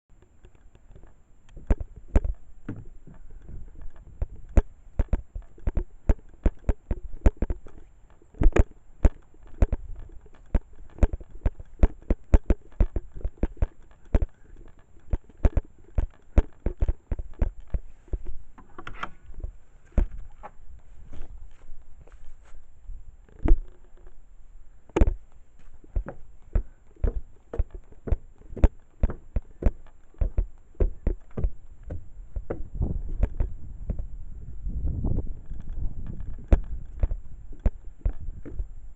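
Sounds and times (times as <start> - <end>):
footsteps outdoors: 0.1 - 24.3, 24.9 - 38.8
wind rumble on microphone: 1.5 - 7.7, 31.0 - 38.9.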